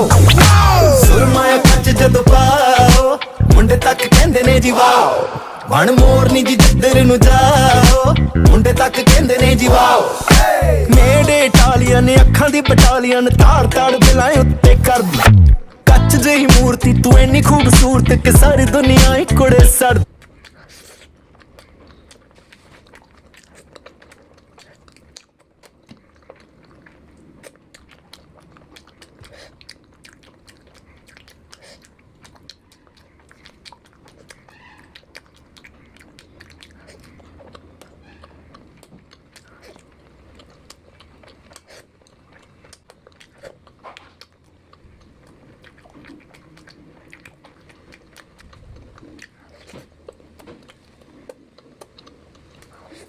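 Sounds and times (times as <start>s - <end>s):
person chewing and biting: 5.5s - 53.0s.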